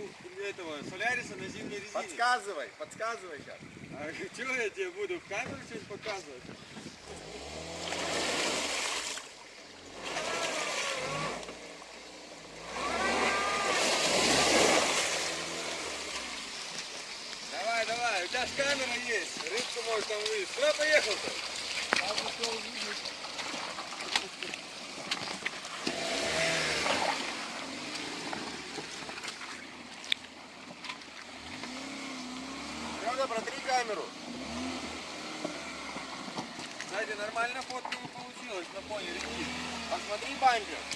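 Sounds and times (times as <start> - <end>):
water splashing: 6.9 - 40.9
car engine revving: 7.0 - 9.1, 9.7 - 24.2, 25.8 - 29.0, 31.3 - 37.1, 38.8 - 40.9
car engine running: 25.8 - 37.4.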